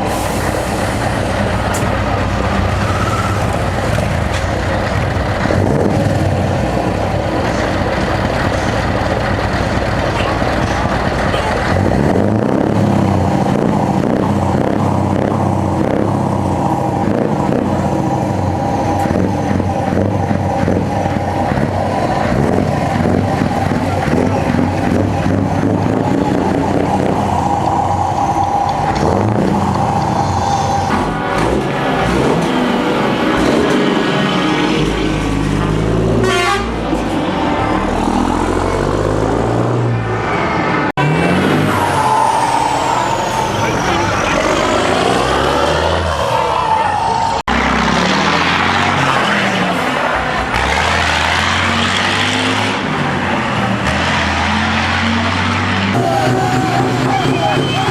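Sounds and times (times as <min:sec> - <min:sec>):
heavy truck engine running loud: 0:00.0 - 0:57.9
truck horn blast: 0:36.1 - 0:38.2, 0:56.0 - 0:57.9.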